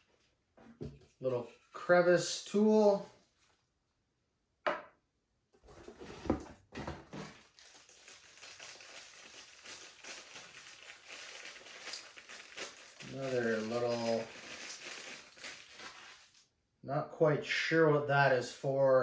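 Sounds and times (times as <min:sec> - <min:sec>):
packaging crinkling and rustling: 0:05.7 - 0:16.4.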